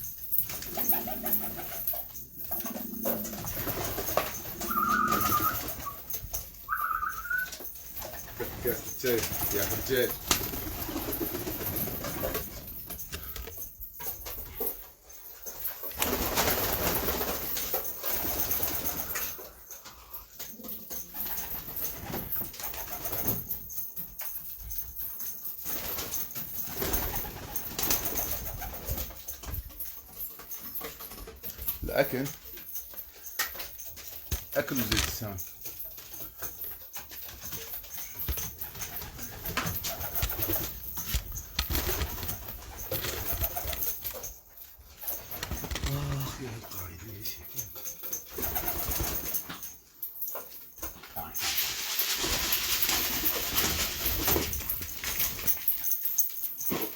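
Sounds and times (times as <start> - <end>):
wings flapping and rustling: 0.0 - 19.7, 20.4 - 47.0, 47.7 - 56.9
pigeons cooing: 0.6 - 7.7.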